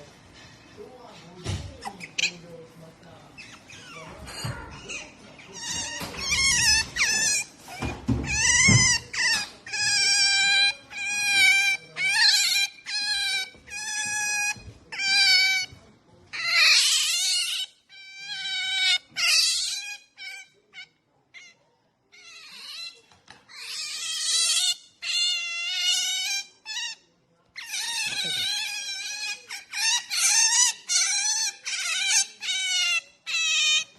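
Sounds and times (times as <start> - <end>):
otter squealing: 3.4 - 15.7, 27.6 - 33.9.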